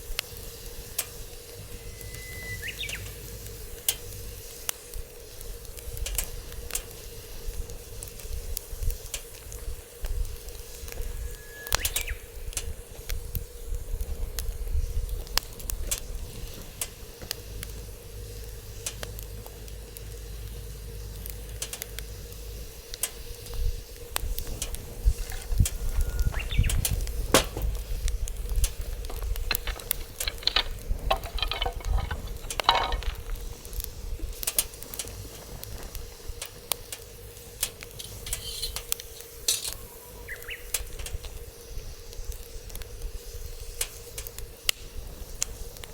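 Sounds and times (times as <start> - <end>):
wood fire crackling and popping: 2.6 - 45.9
wind rumble on microphone: 5.5 - 17.9, 23.4 - 36.7.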